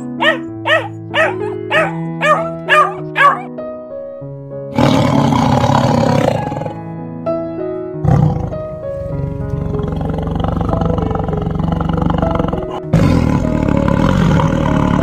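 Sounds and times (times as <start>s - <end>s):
cheetah harsh call: 0.0s - 3.5s
husky yipping: 0.0s - 3.5s
background music: 0.0s - 15.0s.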